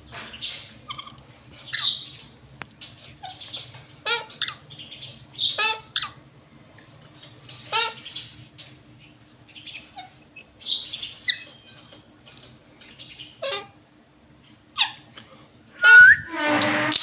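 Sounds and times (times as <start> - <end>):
parrots chirping and squawking: 0.1 - 6.3, 7.0 - 8.8, 9.5 - 13.8, 14.7 - 15.2.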